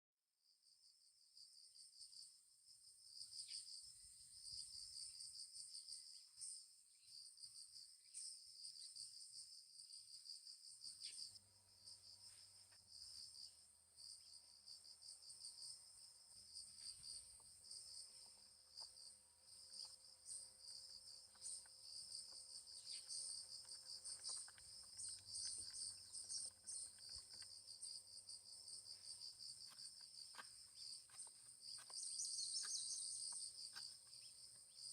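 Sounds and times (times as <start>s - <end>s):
crickets chirping: 0.6s - 34.9s.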